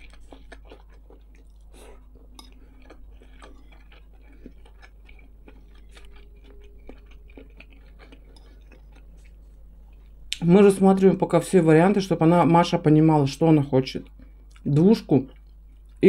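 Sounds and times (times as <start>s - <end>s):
quiet chewing: 0.0s - 10.5s, 14.0s - 16.0s.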